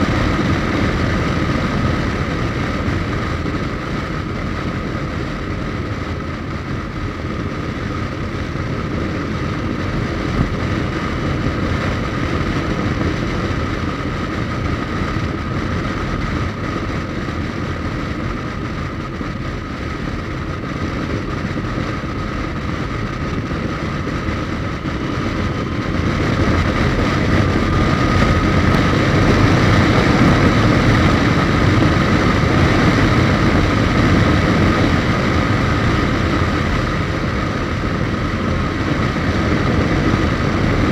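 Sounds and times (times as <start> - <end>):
motorcycle engine drone: 0.0 - 40.9
road noise: 22.6 - 40.9.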